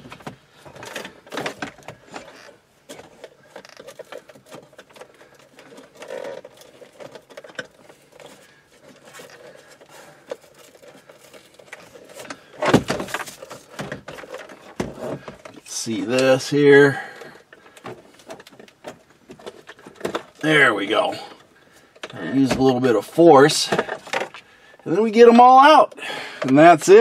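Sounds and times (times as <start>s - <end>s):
plastic clatter: 0.0s - 16.3s, 17.1s - 20.7s, 23.6s - 24.5s.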